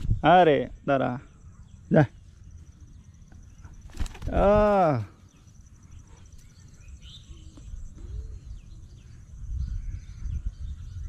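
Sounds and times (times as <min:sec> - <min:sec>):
wind rumble on microphone: 0:00.0 - 0:00.5, 0:03.5 - 0:04.9, 0:06.7 - 0:11.0
faint bird chirps: 0:00.0 - 0:11.0.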